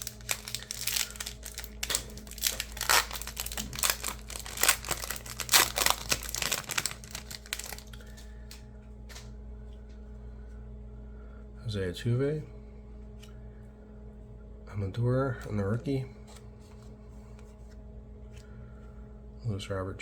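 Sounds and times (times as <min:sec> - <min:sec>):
card wrapper tearing and crinkling: 0:00.0 - 0:08.1.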